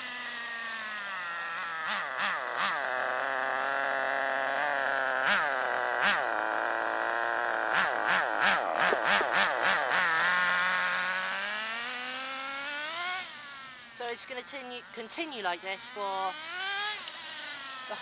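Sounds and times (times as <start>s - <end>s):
rc car engine throttle blips: 0.6s - 11.6s.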